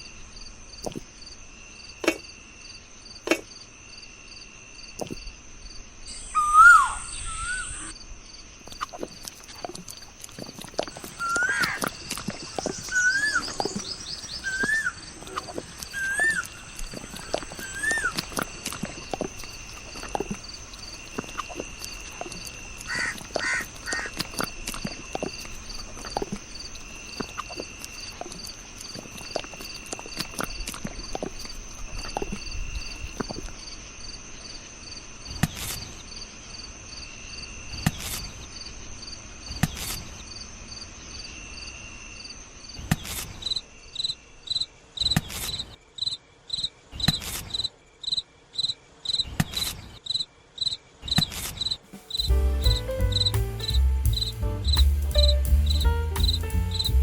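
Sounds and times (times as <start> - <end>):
insects trilling: 0.0 - 42.8, 50.1 - 52.7
bird chirping: 6.1 - 7.9, 10.8 - 29.7, 51.9 - 57.0.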